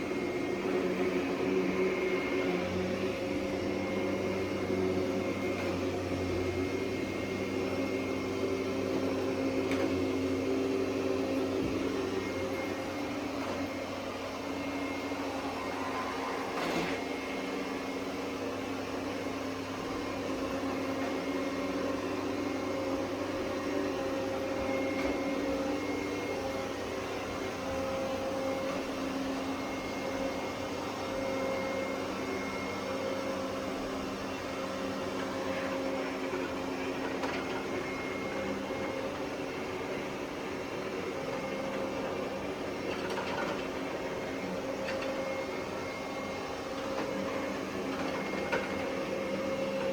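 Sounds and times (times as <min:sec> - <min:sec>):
robot vacuum motor hum: 0:00.0 - 0:32.8.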